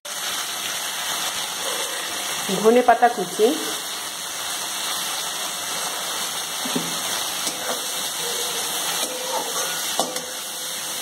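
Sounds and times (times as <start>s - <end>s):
leaves sizzling in butter: 0.1s - 11.0s
spatula scraping: 6.6s - 10.4s.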